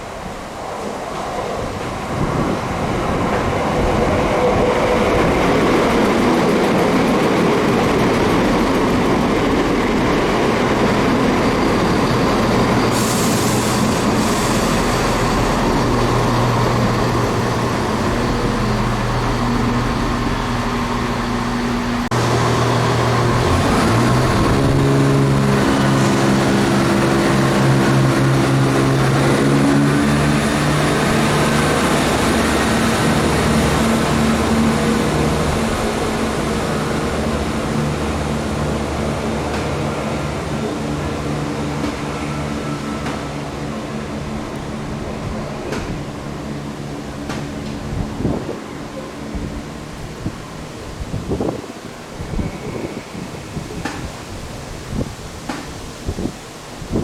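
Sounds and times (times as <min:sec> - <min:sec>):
diesel train engine: 0:00.0 - 0:57.0.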